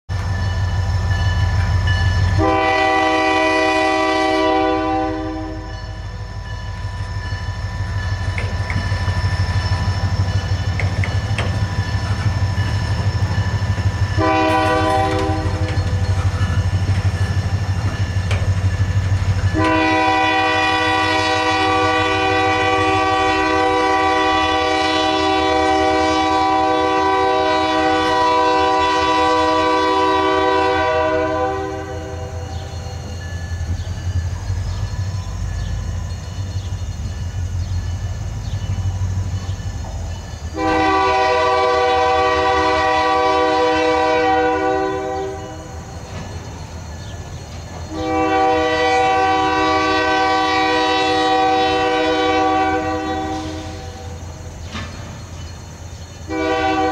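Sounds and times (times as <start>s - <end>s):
diesel locomotive engine rumble: 0.1s - 56.9s
locomotive air horn: 2.3s - 6.0s, 14.1s - 16.1s, 19.5s - 32.6s, 40.6s - 45.8s, 47.9s - 54.2s, 56.3s - 56.9s
wheels clicking over rail joints: 5.7s - 19.8s, 45.8s - 47.9s, 54.2s - 56.2s.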